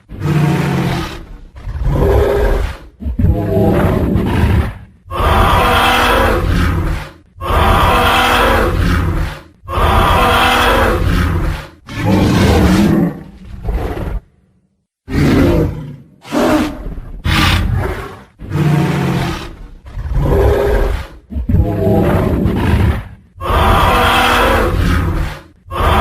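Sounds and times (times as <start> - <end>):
deep growling dinosaur roars: 0.0 - 14.3, 15.1 - 26.0.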